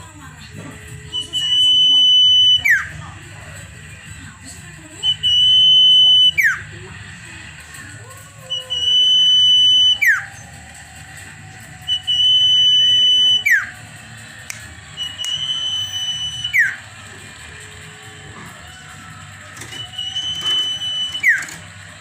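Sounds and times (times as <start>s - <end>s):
songbird whistling: 1.1s - 3.0s, 5.0s - 6.8s, 8.5s - 10.6s, 11.8s - 13.9s, 14.5s - 17.1s, 19.5s - 21.7s.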